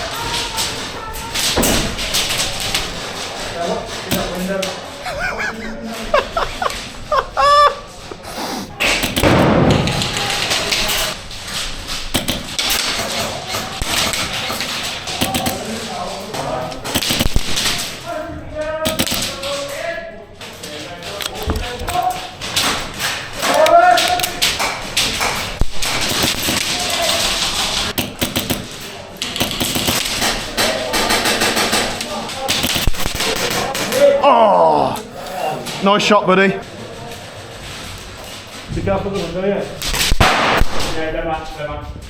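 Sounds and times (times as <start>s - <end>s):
background noise: 0.0s - 42.0s
airsoft gunshots: 8.4s - 11.2s, 11.9s - 16.0s, 16.8s - 18.0s, 18.8s - 19.6s, 21.7s - 34.2s, 39.9s - 41.1s
knocks and sharp taps: 12.1s - 15.6s, 27.9s - 28.7s.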